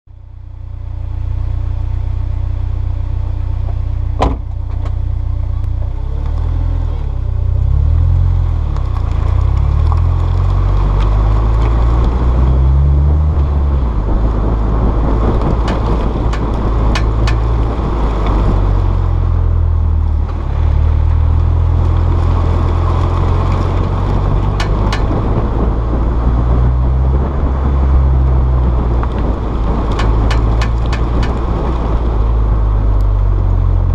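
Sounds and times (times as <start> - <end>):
car engine running: 0.1 - 33.9
road noise: 0.1 - 33.9
sharp clicks from wheel: 15.6 - 17.5, 29.9 - 31.5.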